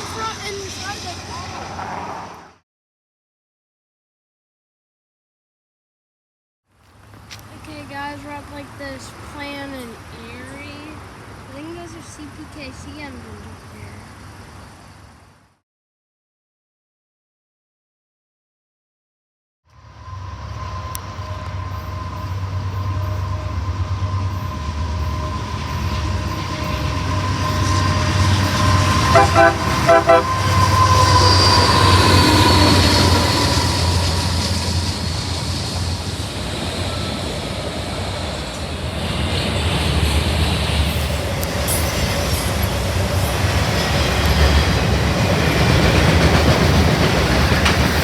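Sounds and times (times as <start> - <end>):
freight train passing: 0.0 - 2.6, 7.0 - 15.2, 19.7 - 48.0
train horn blasts: 20.6 - 34.2.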